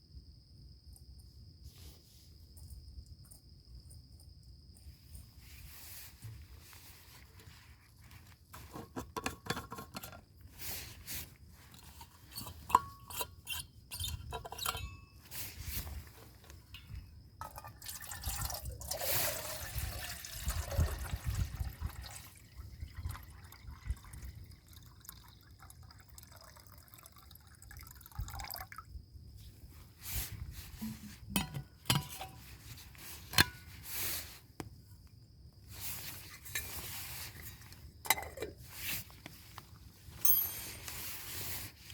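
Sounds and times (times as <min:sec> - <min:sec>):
water dripping and pouring: 0:17.4 - 0:28.8.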